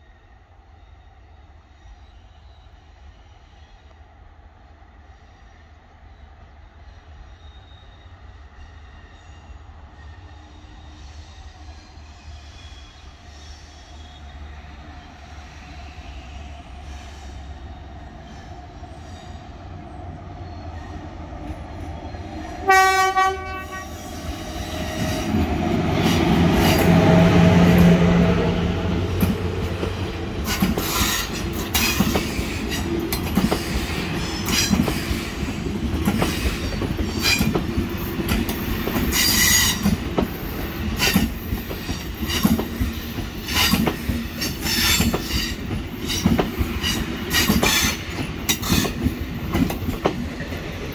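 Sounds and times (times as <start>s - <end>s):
train passing rumble: 0.0s - 50.9s
train horn blast: 22.6s - 24.3s.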